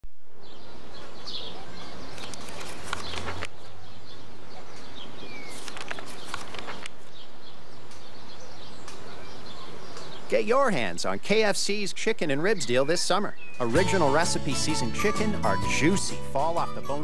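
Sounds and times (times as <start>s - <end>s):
birds chirping: 0.4s - 17.0s
crackly rustling: 1.0s - 9.2s.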